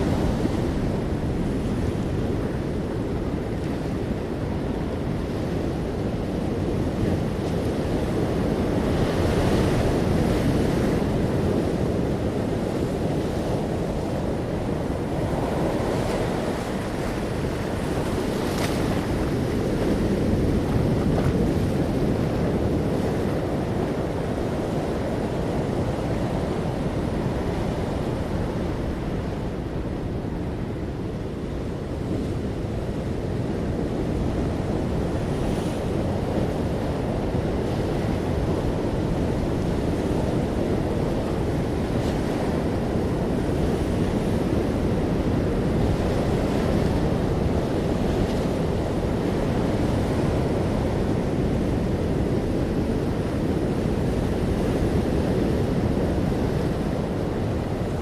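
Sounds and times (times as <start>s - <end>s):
ocean waves washing ashore: 0.0s - 58.0s
wind on microphone: 0.0s - 58.0s.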